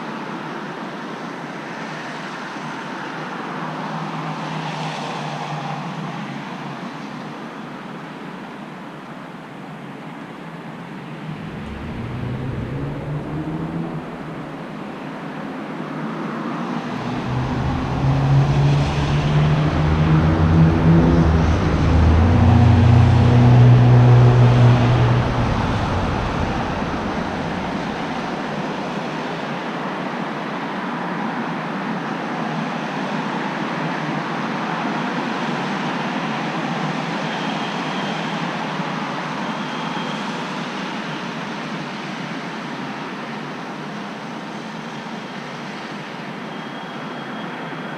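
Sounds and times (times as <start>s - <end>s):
vehicle engine hum passing: 10.5s - 29.7s.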